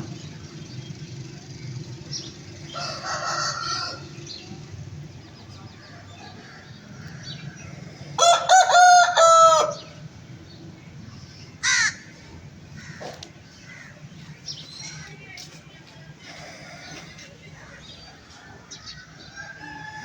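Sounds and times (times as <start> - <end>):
rooster crowing: 2.7 - 4.2, 8.2 - 10.0, 19.2 - 20.0.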